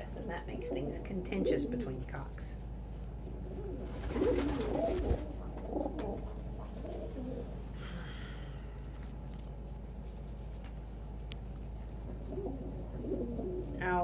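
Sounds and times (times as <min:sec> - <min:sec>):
pigeons cooing: 0:00.0 - 0:02.4, 0:03.2 - 0:08.6, 0:12.0 - 0:14.0.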